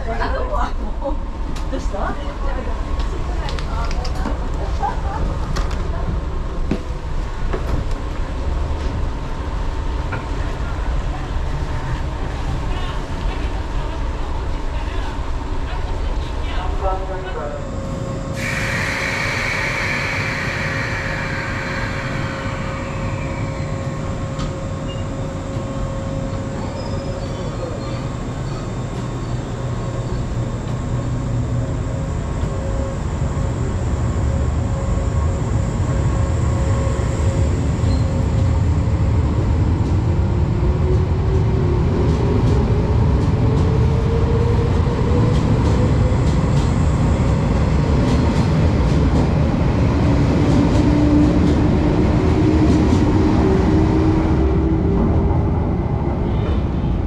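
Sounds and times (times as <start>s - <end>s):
train wheels and motors rumbling: 0.0s - 57.0s
high squeal: 18.4s - 25.2s.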